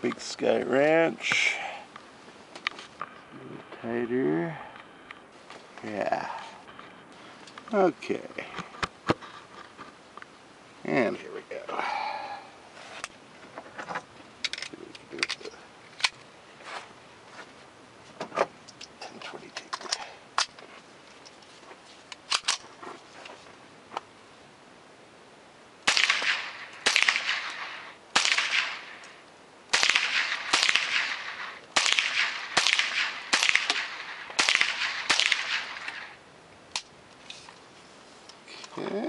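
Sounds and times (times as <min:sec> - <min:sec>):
rifle shots with ringing echo: 0:25.8 - 0:36.2.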